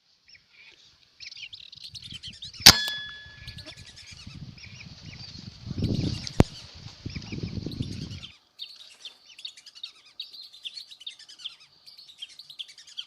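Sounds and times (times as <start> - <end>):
birds chirping: 0.6 - 13.0
metallic clang: 2.7 - 3.7
sharp crack: 2.7 - 3.7.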